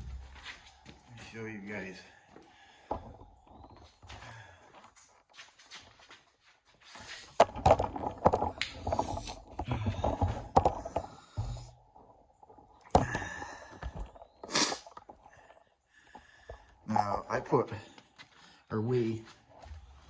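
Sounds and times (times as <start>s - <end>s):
rustling and scraping in a box: 6.7s - 11.8s
breathy sniff: 14.4s - 15.0s.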